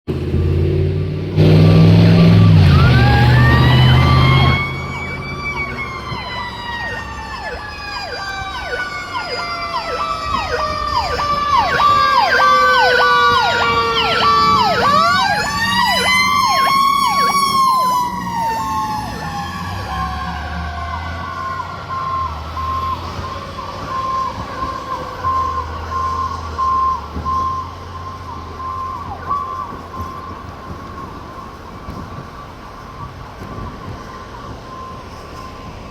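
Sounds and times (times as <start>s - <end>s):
electronic siren yelping: 2.1s - 32.3s.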